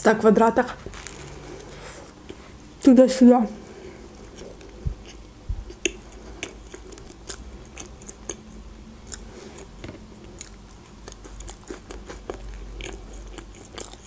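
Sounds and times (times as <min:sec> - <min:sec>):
moist chewing mouth clicks: 0:04.2 - 0:14.0.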